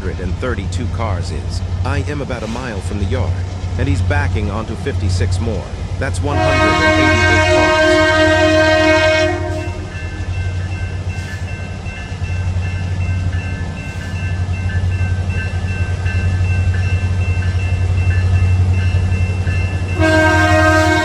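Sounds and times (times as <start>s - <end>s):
diesel locomotive rumbling: 0.0s - 21.0s
train air horn: 6.3s - 10.0s, 20.0s - 21.0s.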